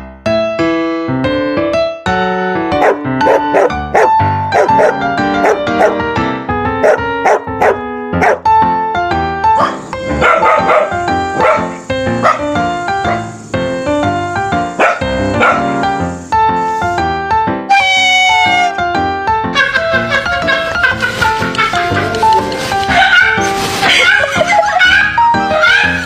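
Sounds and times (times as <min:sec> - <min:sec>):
keyboard piano music: 0:00.0 - 0:26.0
dog barking: 0:02.8 - 0:06.0, 0:06.8 - 0:08.4, 0:09.6 - 0:13.3, 0:14.7 - 0:15.8, 0:22.9 - 0:24.3.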